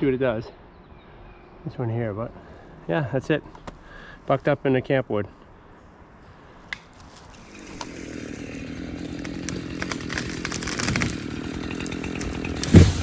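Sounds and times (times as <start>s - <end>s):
chainsaw running: 7.4s - 13.0s.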